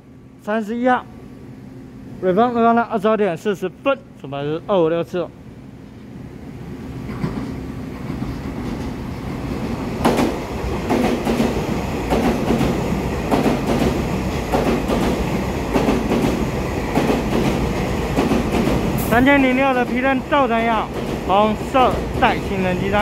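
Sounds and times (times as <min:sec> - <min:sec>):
train wheels rumbling: 0:06.5 - 0:23.0
clickety-clack over rail joints: 0:07.0 - 0:23.0.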